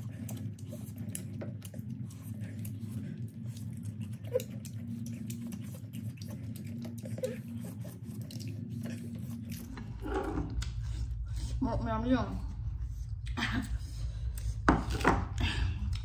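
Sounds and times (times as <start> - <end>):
chewing crispy fried chicken: 0.0 - 11.4
steady low hum: 0.0 - 16.0.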